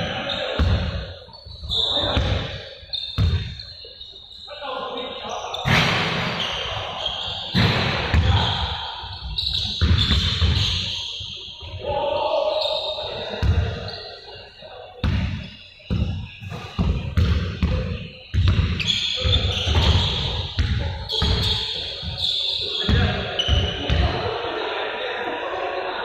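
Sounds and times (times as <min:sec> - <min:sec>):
basketballs bouncing on hard floor: 0:03.2 - 0:03.5, 0:09.6 - 0:10.8, 0:15.0 - 0:22.2.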